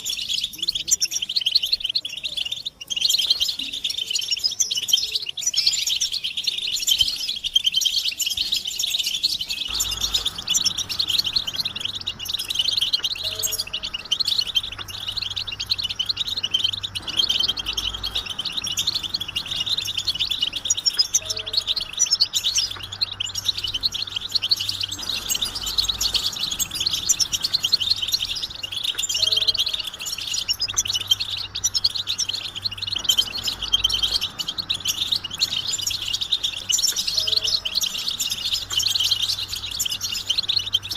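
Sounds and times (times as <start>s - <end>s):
goldfinches twittering: 0.0s - 40.9s
faint low hum: 9.5s - 40.9s.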